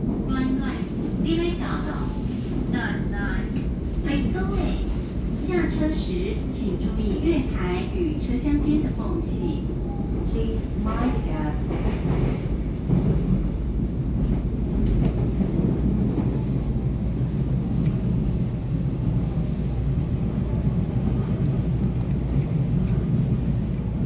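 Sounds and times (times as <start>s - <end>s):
train wheels rumbling on rails: 0.0s - 24.0s
faint clicks: 17.8s - 18.0s.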